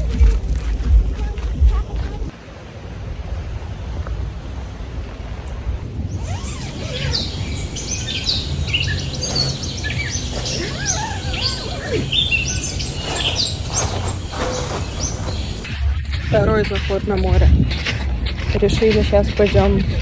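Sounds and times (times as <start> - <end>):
low background rumble: 0.0 - 20.0
songbirds chirping: 5.4 - 20.0.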